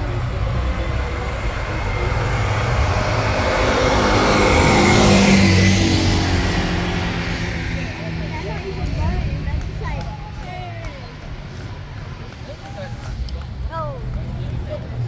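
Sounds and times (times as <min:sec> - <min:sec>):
car driving past: 0:00.0 - 0:10.0.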